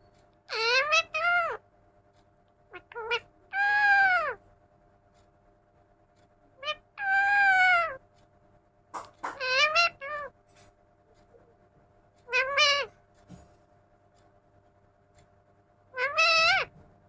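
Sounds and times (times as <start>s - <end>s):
parrot imitating cat meow: 0.5s - 1.6s, 2.7s - 4.4s, 6.6s - 8.0s, 9.2s - 10.3s, 12.3s - 12.9s, 16.0s - 16.7s.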